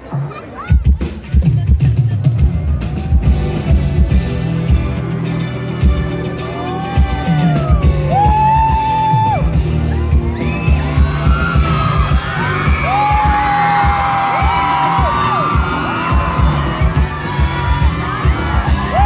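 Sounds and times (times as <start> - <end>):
heavy kick drum beat: 0.7 - 19.0
crowd whooping: 2.5 - 3.9, 6.2 - 19.0.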